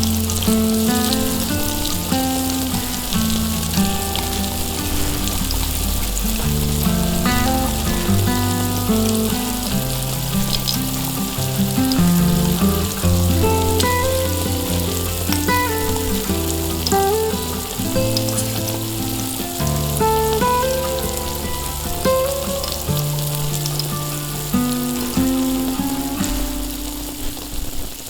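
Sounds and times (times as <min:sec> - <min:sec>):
background music: 0:00.0 - 0:27.8.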